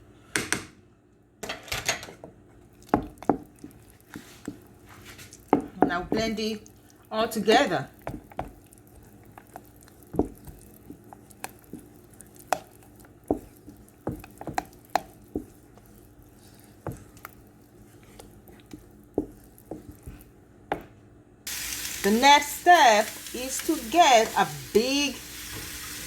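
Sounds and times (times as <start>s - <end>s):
utensil stirring thick batter: 2.8s - 20.4s.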